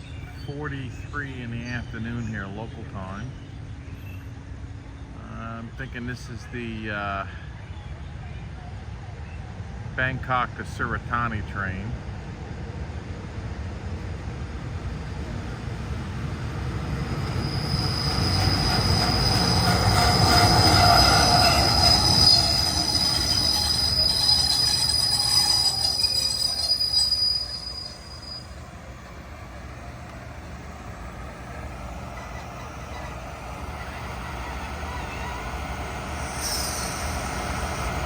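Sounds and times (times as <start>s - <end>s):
train rumbling: 0.0s - 38.0s
high-pitched metallic squeal: 17.4s - 28.6s, 32.2s - 38.0s.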